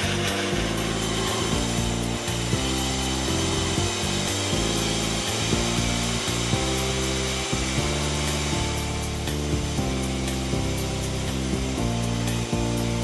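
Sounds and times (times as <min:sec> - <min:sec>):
background music: 0:00.0 - 0:13.0
core drill grinding: 0:00.0 - 0:13.0.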